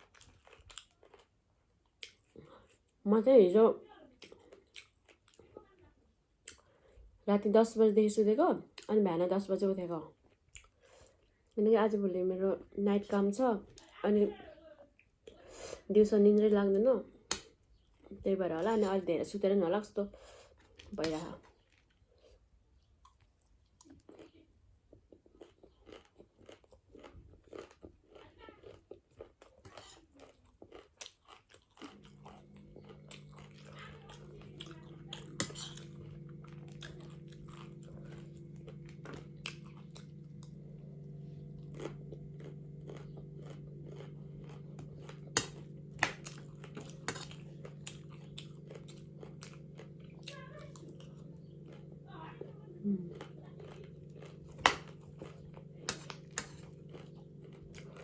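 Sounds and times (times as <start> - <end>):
person chewing crunchy food: 0.0 - 3.0, 4.2 - 5.6, 10.1 - 11.5, 20.4 - 58.0
low hum: 31.9 - 58.0.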